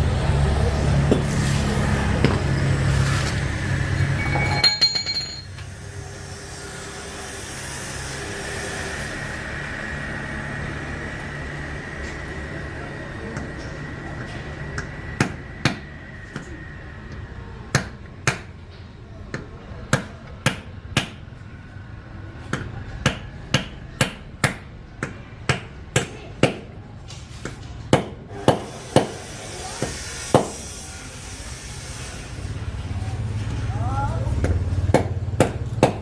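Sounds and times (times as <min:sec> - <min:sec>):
hammer blows: 0:04.0 - 0:05.6, 0:27.4 - 0:30.8.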